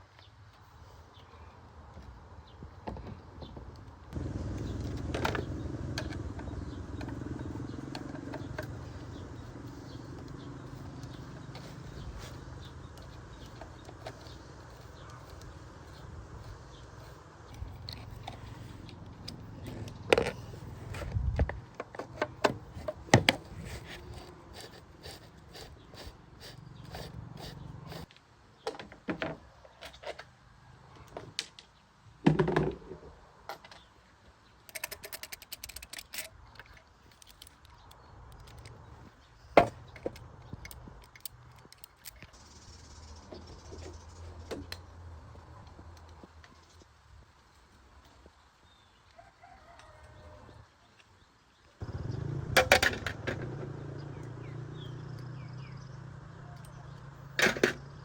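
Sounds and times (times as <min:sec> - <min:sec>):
hand tools and metal parts knocking: 0:04.2 - 0:28.1, 0:34.6 - 0:38.9.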